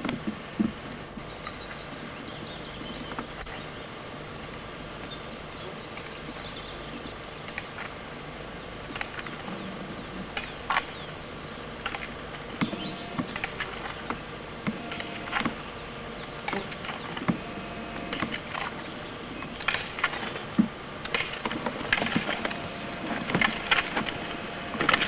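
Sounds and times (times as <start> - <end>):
roller skis rolling on gravel: 11.8 - 25.0.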